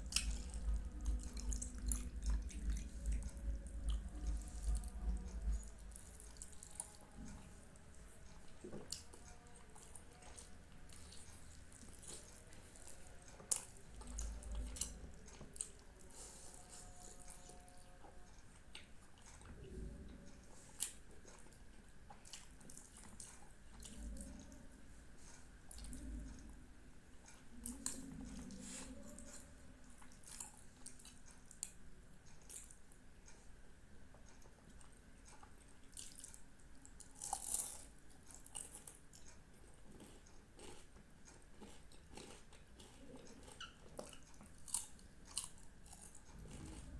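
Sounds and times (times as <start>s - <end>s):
wet chewing: 0.0s - 19.7s, 20.6s - 24.6s, 27.5s - 32.8s, 34.7s - 46.9s
soft low murmurs: 0.0s - 21.7s, 22.8s - 31.2s.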